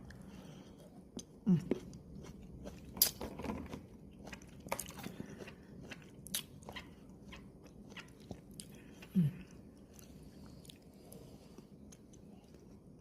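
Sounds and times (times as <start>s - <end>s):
chewing: 0.0s - 13.0s
crunchy food being bitten: 1.2s - 8.8s.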